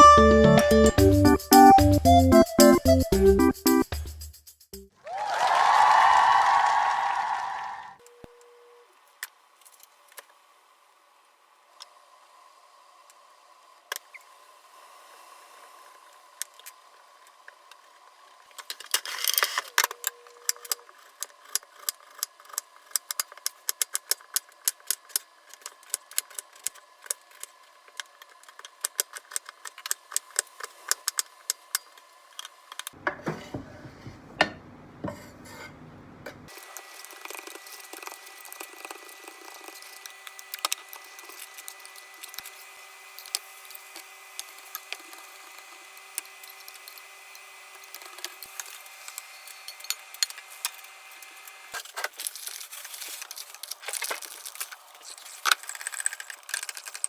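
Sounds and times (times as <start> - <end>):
drawing supplies clicking and clattering: 51.8 - 57.0.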